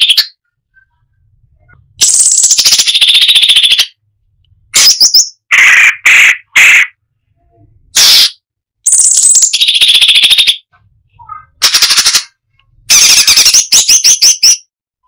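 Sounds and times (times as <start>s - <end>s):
bird singing rattling trills: 2.0s - 4.0s, 8.9s - 12.3s.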